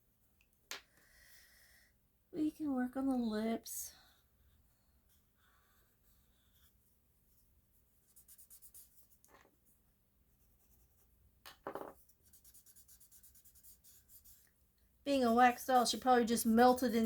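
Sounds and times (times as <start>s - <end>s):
pencil scratching on paper: 5.0s - 9.2s, 11.9s - 14.5s, 15.1s - 17.0s.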